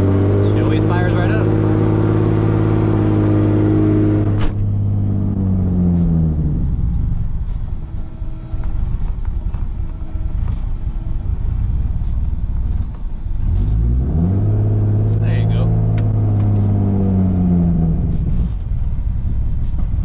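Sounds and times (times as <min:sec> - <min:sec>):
car engine idling rough: 0:00.0 - 0:20.0
engine revving: 0:00.0 - 0:20.0.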